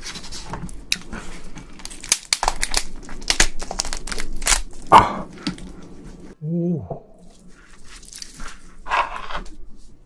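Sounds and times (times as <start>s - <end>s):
loud crinkling and crackling: 0.0s - 4.9s.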